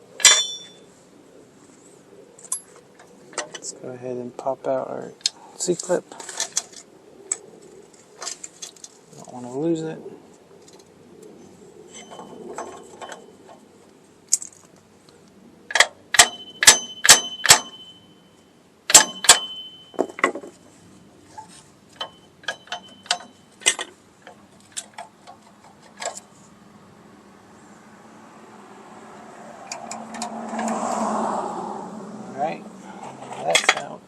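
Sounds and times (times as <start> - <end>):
tools striking steel parts: 0.2 - 0.8, 12.0 - 13.3, 15.7 - 18.1, 18.9 - 20.6, 22.0 - 26.2, 33.4 - 34.0.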